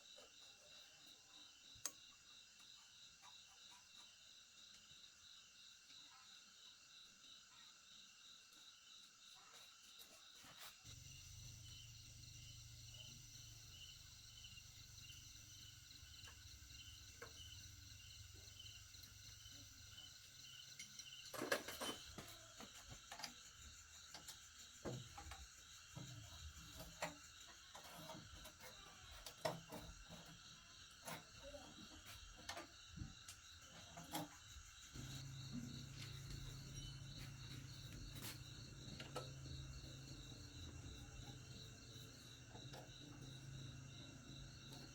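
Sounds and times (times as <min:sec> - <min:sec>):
insect chirring: 0:10.9 - 0:44.9.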